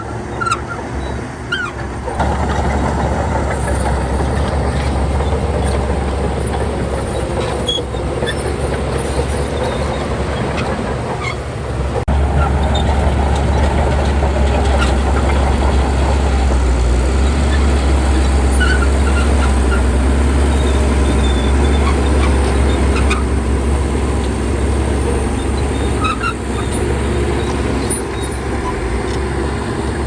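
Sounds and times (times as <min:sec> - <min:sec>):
bulldozer diesel engine running: 0:00.0 - 0:30.0
faint short squeaks: 0:07.0 - 0:11.5.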